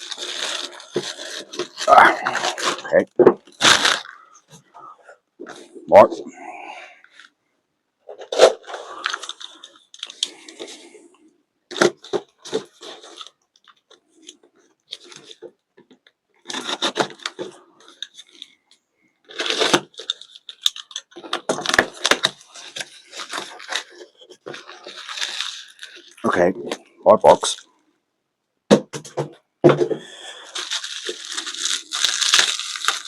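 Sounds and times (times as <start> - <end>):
packaging tearing and crinkling: 0.0 - 4.3, 8.1 - 10.8, 16.4 - 18.6, 19.2 - 26.4, 30.4 - 33.0.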